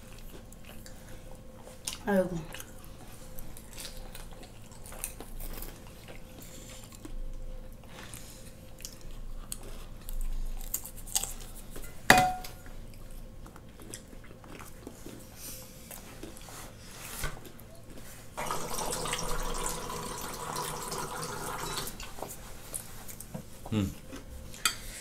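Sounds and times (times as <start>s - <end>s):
chewing and crunching food: 0.0s - 12.0s, 12.6s - 18.4s, 21.9s - 25.0s
dish clinking: 12.1s - 12.6s.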